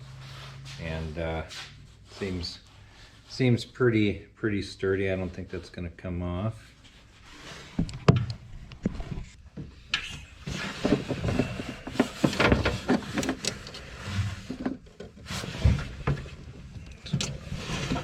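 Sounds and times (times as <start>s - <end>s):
wire handling clicks and rustles: 7.7s - 18.0s.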